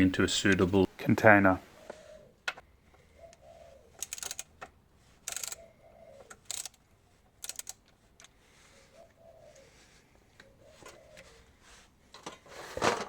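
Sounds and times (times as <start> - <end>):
socket ratchet clicking: 4.0 - 4.5, 5.3 - 5.6, 6.3 - 6.8, 7.4 - 8.3.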